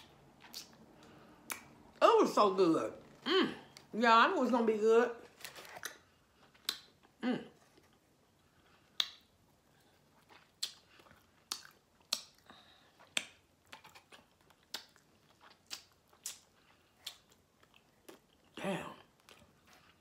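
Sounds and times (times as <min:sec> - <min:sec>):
wet mouth clicks and lip smacks: 0:00.0 - 0:01.7, 0:06.6 - 0:07.1, 0:08.9 - 0:09.3, 0:10.3 - 0:17.4.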